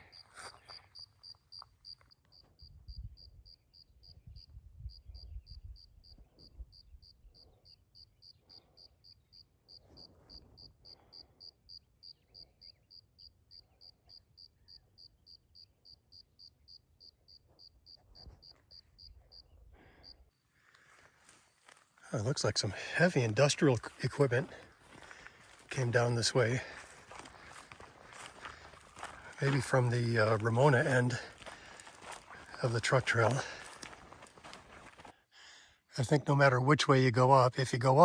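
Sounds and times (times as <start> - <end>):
cricket chirping: 0.0 - 20.4.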